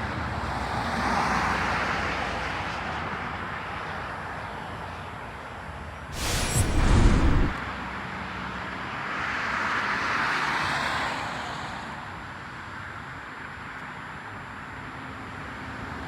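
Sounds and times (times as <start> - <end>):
loud low rumble: 6.2 - 7.6
vehicle tyre hiss passing: 6.2 - 7.6.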